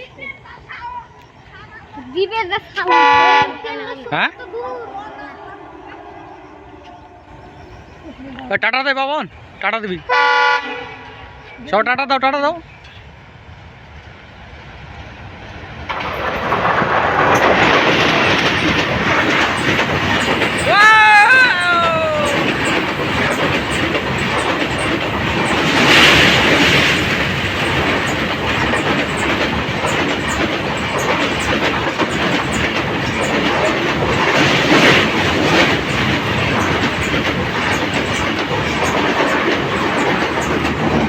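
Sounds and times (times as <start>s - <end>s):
train wheels clattering over rail joints: 15.6s - 41.0s.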